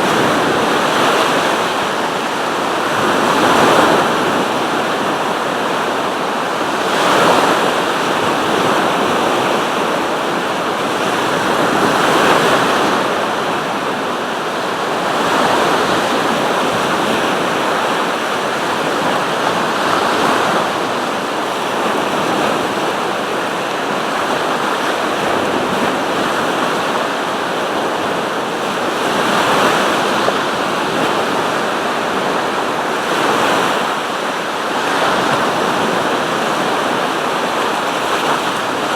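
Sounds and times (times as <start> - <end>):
waves washing onto shore: 0.0 - 38.9.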